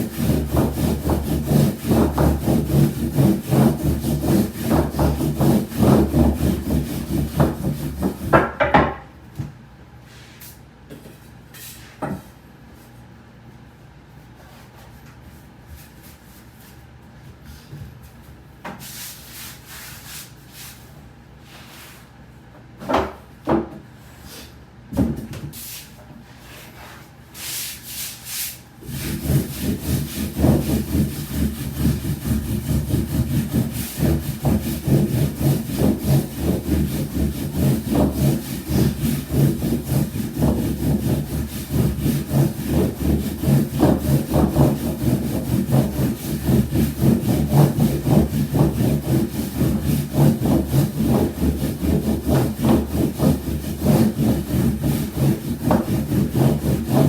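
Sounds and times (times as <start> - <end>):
rhythmic rubbing of dough on wood: 0.0 - 8.6, 28.8 - 57.0.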